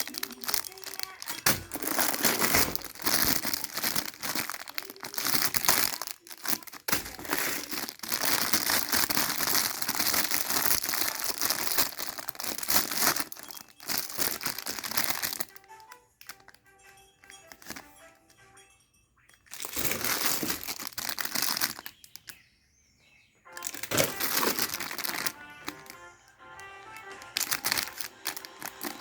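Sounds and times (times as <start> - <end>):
plastic wrapping crinkling: 0.0 - 18.4, 19.4 - 22.4, 23.4 - 29.0
background music: 10.6 - 20.7, 23.4 - 29.0.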